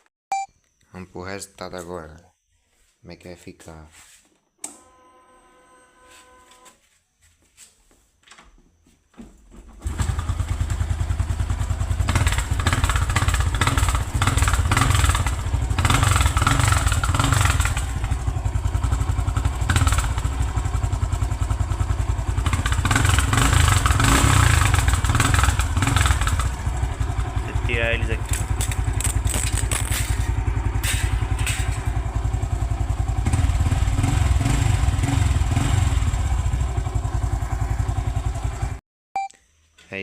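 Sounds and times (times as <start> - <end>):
motorcycle engine revving: 9.8 - 38.8.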